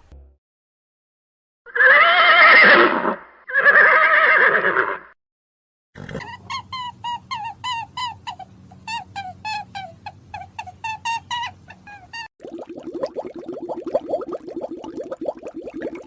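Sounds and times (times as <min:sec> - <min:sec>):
horse whinnying: 0:01.7 - 0:05.2.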